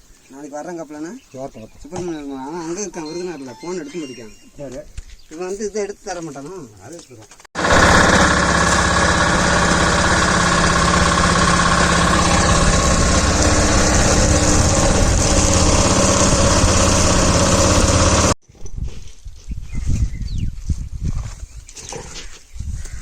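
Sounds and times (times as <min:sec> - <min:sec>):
engine running steadily: 0:07.6 - 0:18.4.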